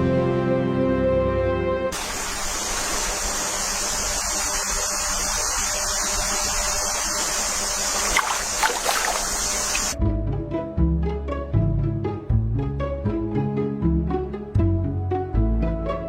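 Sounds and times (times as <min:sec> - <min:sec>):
rushing water: 0:07.9 - 0:10.0
sharp clicks or splashes: 0:08.0 - 0:10.0.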